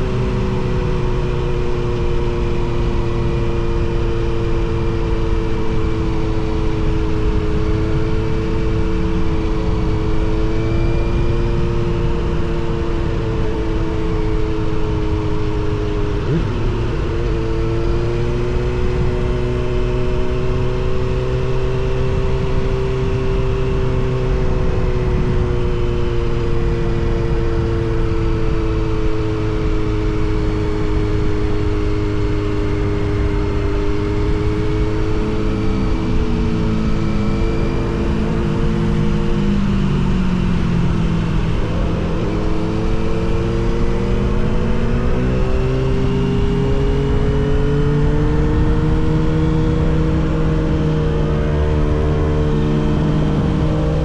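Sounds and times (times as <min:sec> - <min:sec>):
motorcycle engines cruising: 0:00.0 - 0:54.0
wind and road rumble: 0:00.0 - 0:54.0.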